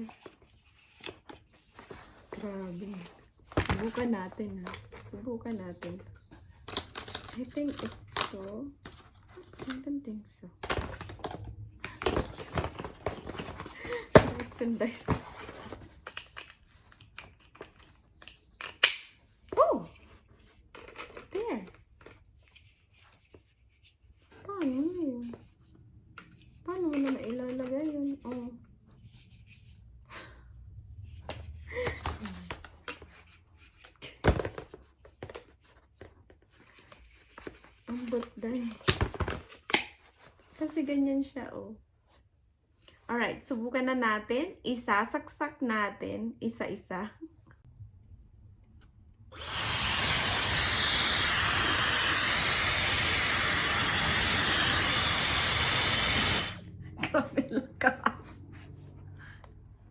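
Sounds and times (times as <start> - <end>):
plastic attachments clicking and knocking: 3.0 - 9.9, 10.6 - 19.2, 34.0 - 40.2, 49.3 - 56.6
hair dryer blowing: 49.3 - 57.3.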